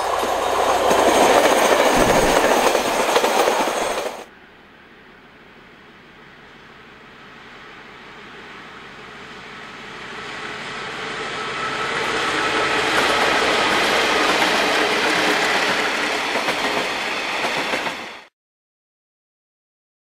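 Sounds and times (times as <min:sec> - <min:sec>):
wagon wheels rolling on rails: 0:00.0 - 0:04.3
diesel locomotives passing: 0:00.0 - 0:18.3.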